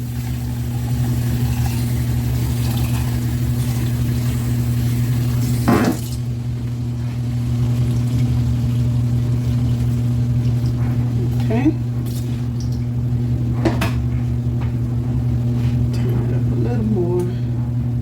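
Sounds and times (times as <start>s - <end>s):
food sizzling in a frying pan: 0.0s - 10.2s
steady low hum: 0.0s - 18.0s.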